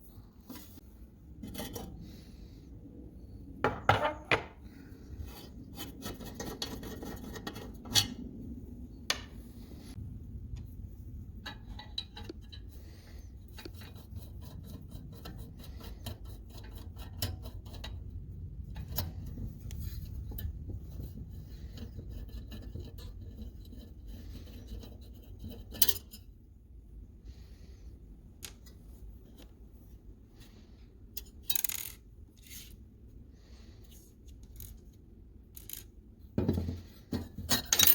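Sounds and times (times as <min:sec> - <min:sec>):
rubbing and scraping: 0:03.7 - 0:26.5.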